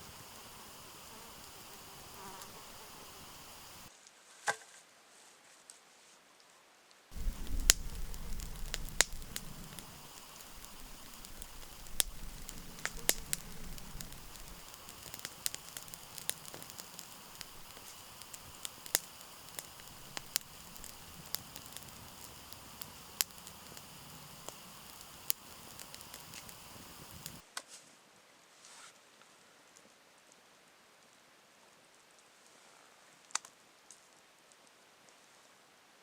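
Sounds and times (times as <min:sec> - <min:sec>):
burning wood popping: 0:00.0 - 0:03.9, 0:07.1 - 0:27.4
campfire crackling: 0:00.0 - 0:03.9, 0:07.1 - 0:27.4.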